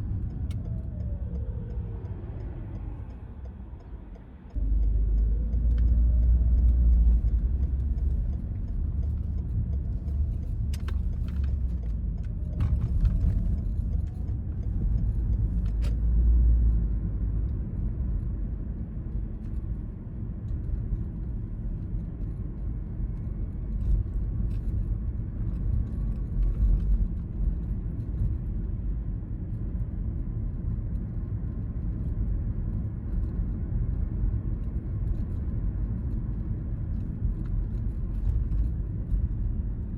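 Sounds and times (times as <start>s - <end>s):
faint rising whine: 0.0s - 8.0s
car road and engine rumble: 0.0s - 39.9s.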